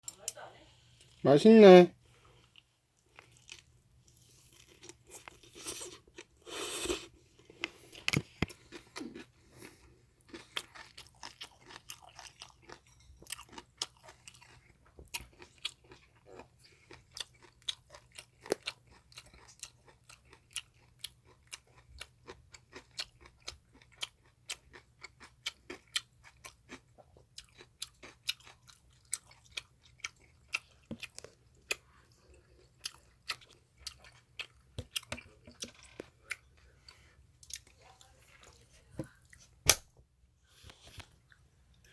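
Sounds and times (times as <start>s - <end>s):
wet chewing with lip clicks: 2.4s - 39.8s.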